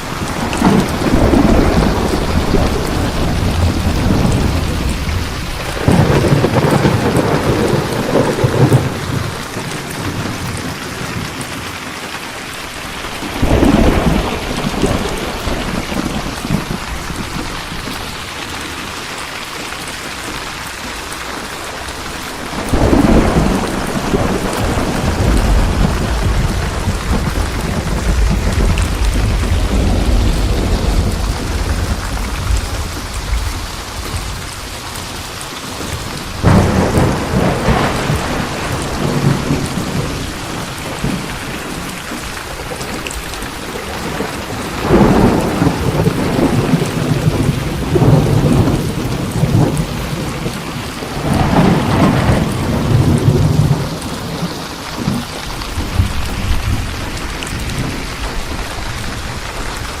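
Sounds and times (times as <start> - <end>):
heavy rain hissing: 0.0 - 60.0
thunder rumbling: 0.0 - 60.0.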